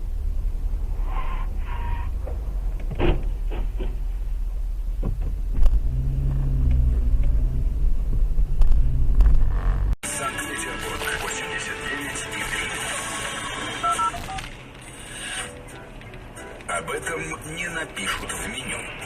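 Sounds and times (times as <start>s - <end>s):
low engine hum: 0.0s - 10.0s
moving vehicle rumble: 0.0s - 19.0s.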